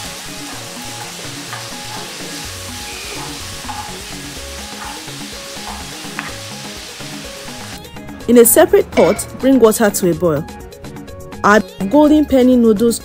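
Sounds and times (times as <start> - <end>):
chicken sizzling in oil: 0.0 - 7.8
wooden spoon stirring: 0.4 - 6.3.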